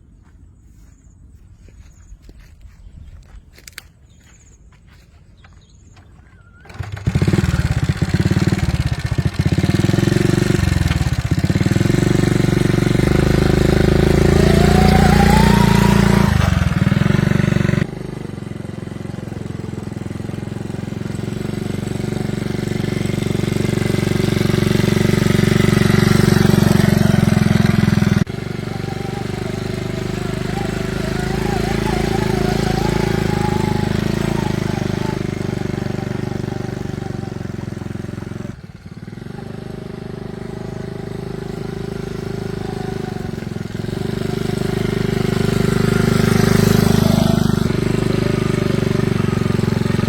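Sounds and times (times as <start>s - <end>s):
motor running: 19.5s - 38.6s.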